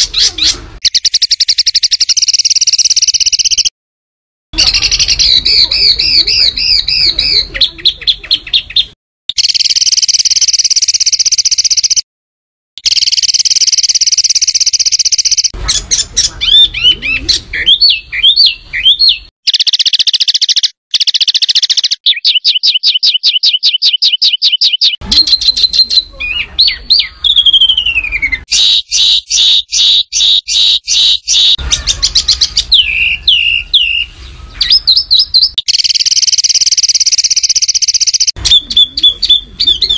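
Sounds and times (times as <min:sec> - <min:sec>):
songbird trills and chips: 0:00.8 - 0:03.7, 0:12.8 - 0:39.9.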